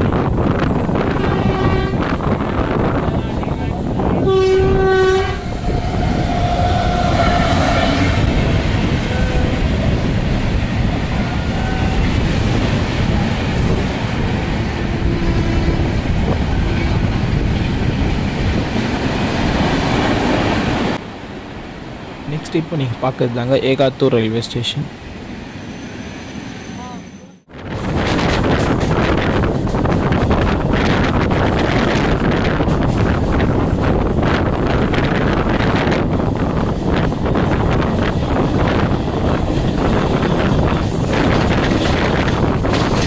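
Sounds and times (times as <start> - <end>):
train wheels rumbling on rails: 0.0 - 21.0, 25.4 - 43.0
train horn: 1.0 - 2.2, 4.1 - 9.8, 11.2 - 12.1, 14.8 - 16.9.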